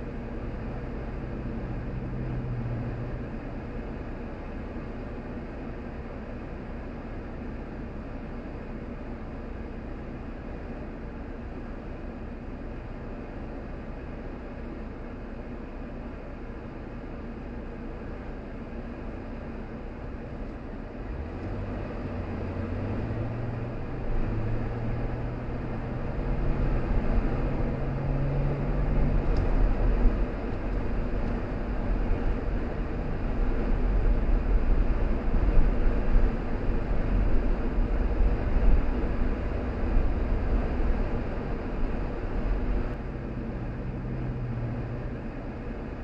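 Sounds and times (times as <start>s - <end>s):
car engine accelerating: 0.0s - 4.0s, 20.4s - 46.0s
deep road rumble: 0.0s - 46.0s.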